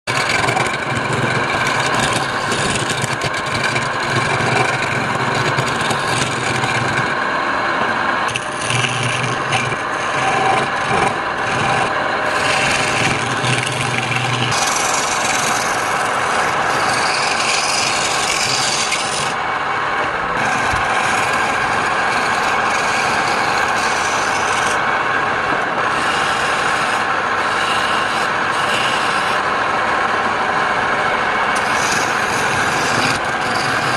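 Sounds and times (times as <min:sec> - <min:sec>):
lathe tool scraping wood: 0:00.0 - 0:33.9
lathe motor hum: 0:00.1 - 0:33.9.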